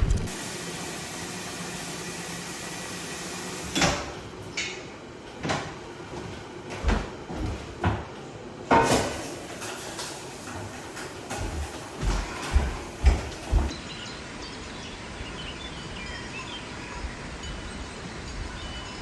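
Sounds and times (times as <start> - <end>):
steady hiss: 0.2 - 3.8.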